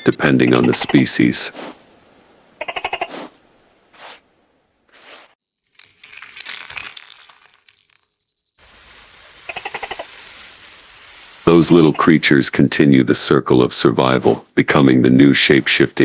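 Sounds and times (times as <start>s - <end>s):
short soft hisses: 1.6s - 1.9s, 3.1s - 3.4s, 14.2s - 14.6s
cricket trill: 5.4s - 13.1s, 14.2s - 14.6s.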